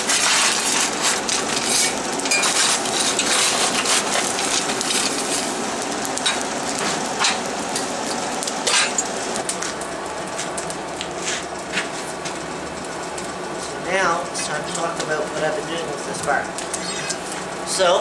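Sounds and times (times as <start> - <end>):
sharp fire pops: 0.0 - 9.8
fire crackling: 0.0 - 18.0.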